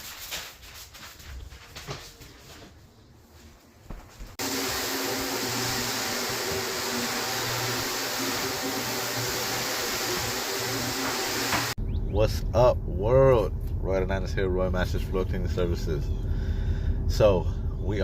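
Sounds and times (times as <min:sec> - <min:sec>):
floor machine motor humming: 0:04.4 - 0:11.8.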